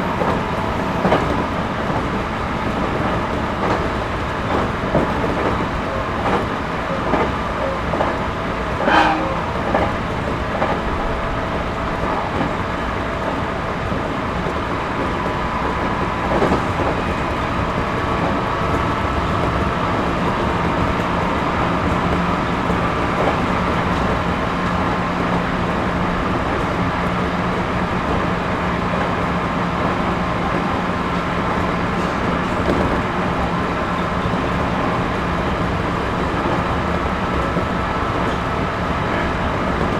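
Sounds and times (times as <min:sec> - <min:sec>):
train wheels rumbling: 0:00.0 - 0:39.9.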